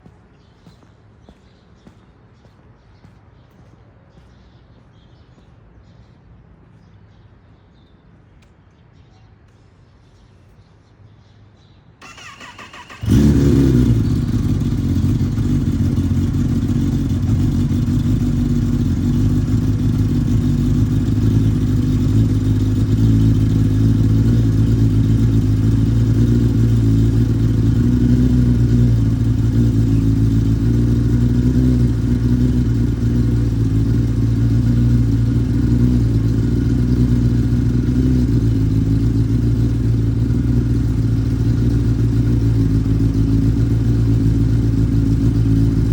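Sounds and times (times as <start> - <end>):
motorcycle engine cranking: 12.0 - 15.6
motorcycle engine idling: 12.0 - 45.9.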